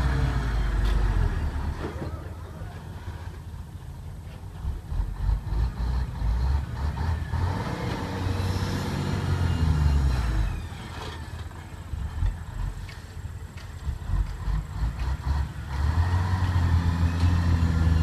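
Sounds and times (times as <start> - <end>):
vehicle engine running: 8.2 - 18.0.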